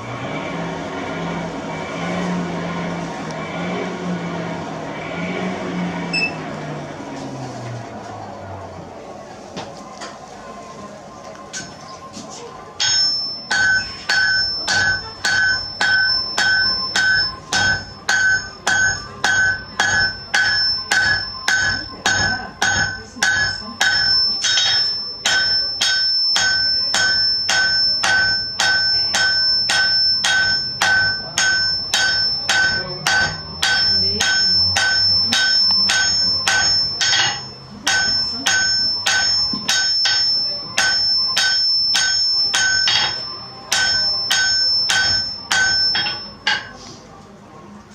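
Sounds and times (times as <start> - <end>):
hammer striking metal on anvil: 12.8 - 46.8.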